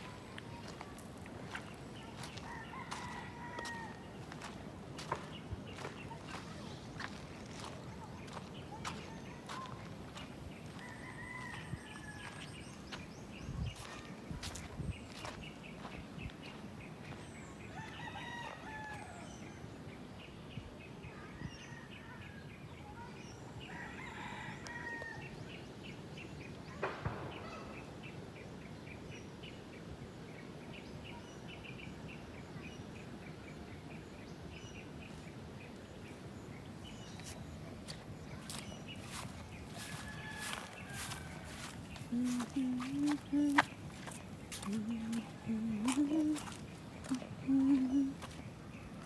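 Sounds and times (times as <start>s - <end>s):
rooster crowing: 2.4s - 4.1s, 17.7s - 19.3s, 23.8s - 25.2s, 39.7s - 43.2s.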